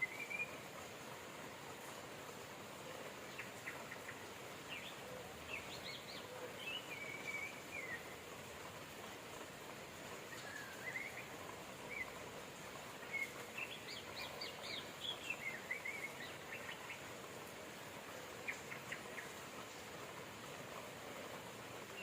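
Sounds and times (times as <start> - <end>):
rain hissing: 0.0 - 22.0
birds chirping: 12.8 - 17.3.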